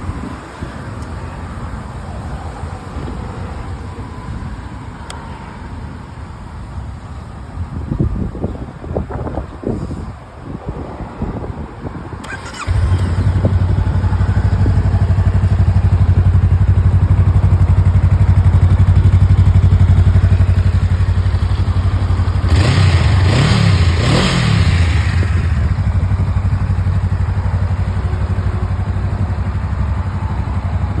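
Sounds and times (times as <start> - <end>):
motorcycle engine idling and revving: 11.3 - 31.0.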